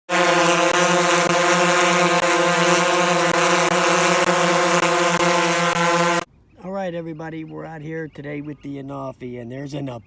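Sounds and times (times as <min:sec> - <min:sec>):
drone propellers humming: 0:00.1 - 0:06.3.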